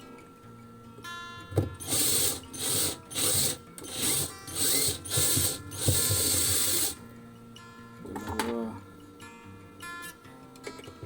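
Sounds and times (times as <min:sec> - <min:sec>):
ratchet wrench clicking: 0:01.8 - 0:07.0.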